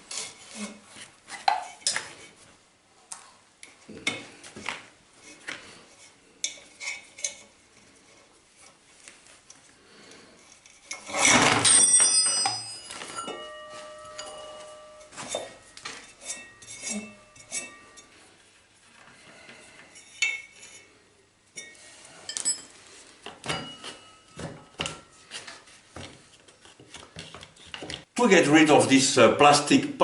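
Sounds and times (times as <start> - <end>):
metal parts clinking: 10.8 - 17.8.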